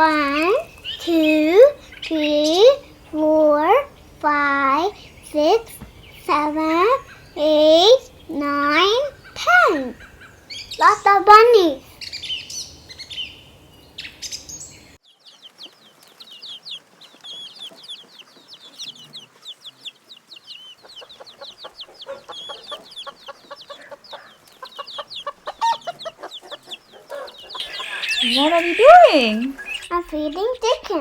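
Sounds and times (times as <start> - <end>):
chickens clucking: 0.0 - 31.0
quick high chirps: 27.2 - 31.0.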